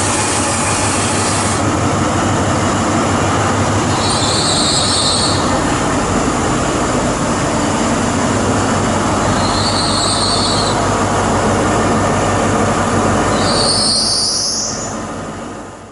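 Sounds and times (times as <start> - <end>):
train rumbling over rails: 0.0 - 15.9
train wheels squealing: 3.9 - 5.6, 9.3 - 10.8, 13.3 - 15.0.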